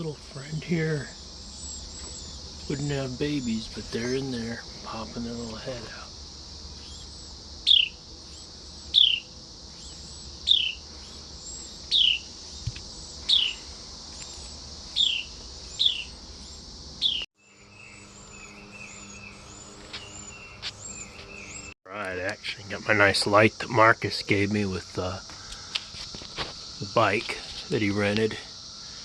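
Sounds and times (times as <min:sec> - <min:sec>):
crickets hissing: 0:00.0 - 0:29.0
bird chirping sharply: 0:06.8 - 0:10.8, 0:11.9 - 0:12.3, 0:13.3 - 0:13.6, 0:15.0 - 0:16.2, 0:17.0 - 0:17.2.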